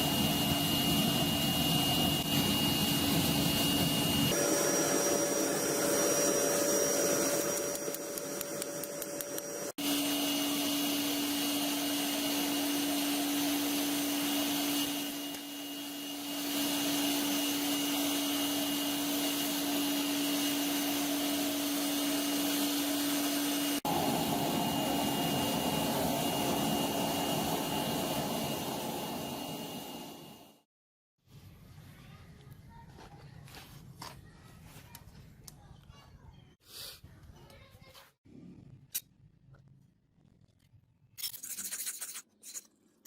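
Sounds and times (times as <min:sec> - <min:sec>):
electric power tool running: 0:00.0 - 0:30.6.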